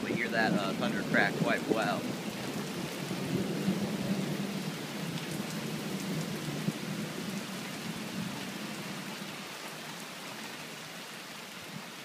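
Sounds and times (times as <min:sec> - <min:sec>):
thunder rumbling: 0:00.0 - 0:08.4
rain falling: 0:00.0 - 0:12.0.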